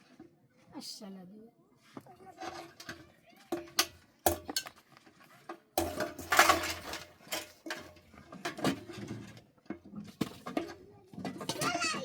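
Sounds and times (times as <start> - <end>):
pots and dishes clinking: 2.3 - 4.8, 5.4 - 12.0
rough clatter: 5.8 - 12.0.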